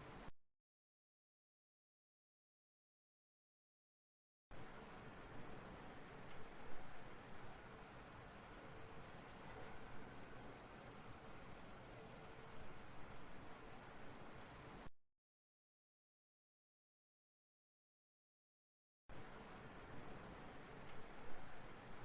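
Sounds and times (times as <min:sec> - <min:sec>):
insect high-pitched trill: 0:00.0 - 0:00.3, 0:04.5 - 0:14.9, 0:19.1 - 0:22.0.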